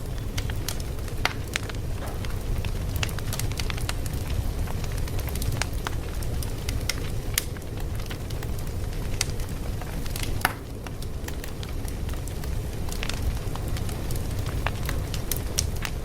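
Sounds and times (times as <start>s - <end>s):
wood fire crackling: 0.0s - 16.0s
sharp pops and snaps: 10.1s - 11.7s.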